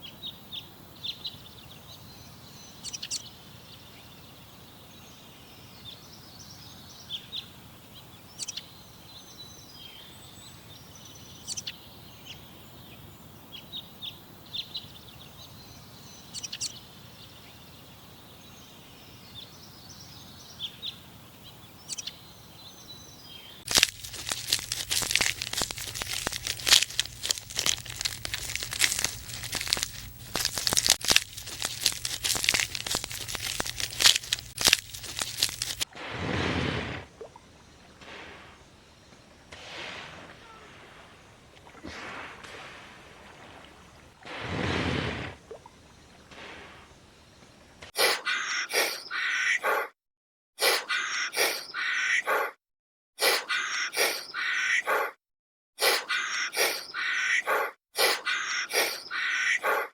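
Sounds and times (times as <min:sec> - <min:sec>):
loud crackling and crunching: 0:23.7 - 0:36.7.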